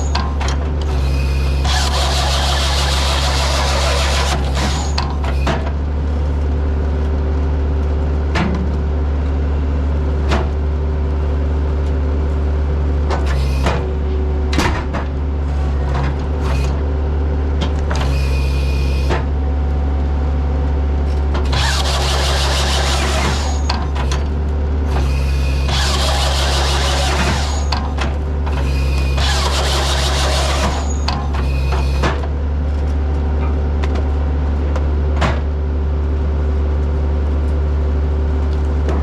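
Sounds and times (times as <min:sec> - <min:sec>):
diesel engine under load: 0:00.0 - 0:39.0
machine knocks and clanks: 0:13.1 - 0:15.3, 0:25.7 - 0:32.4, 0:35.1 - 0:35.6.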